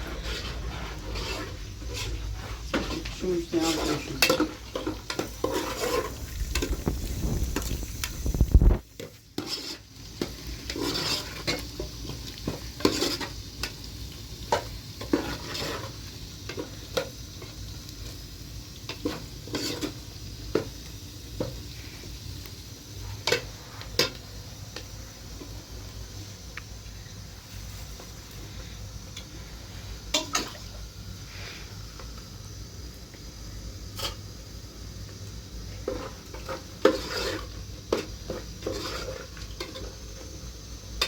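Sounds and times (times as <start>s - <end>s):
objects scraping and clinking: 0.0s - 11.8s, 35.8s - 40.0s.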